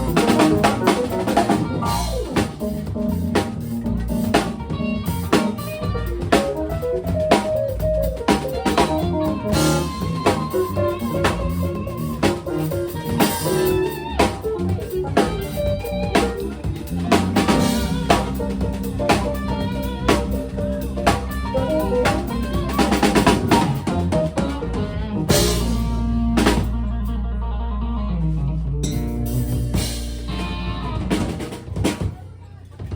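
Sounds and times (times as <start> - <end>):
quick run of drum strokes: 0.0 - 24.7
live band playing instrumental: 0.0 - 32.4.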